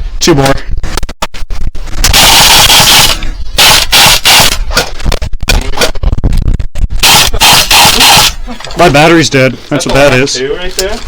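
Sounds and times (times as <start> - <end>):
airsoft rifle full-auto bursts: 2.1 - 4.8, 7.0 - 8.4.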